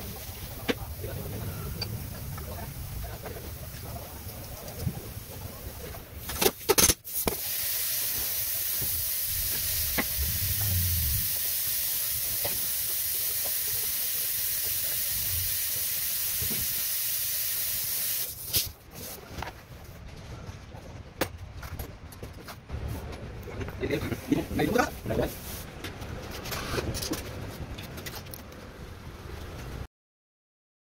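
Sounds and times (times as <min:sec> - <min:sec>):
steady hiss: 0:00.0 - 0:18.8.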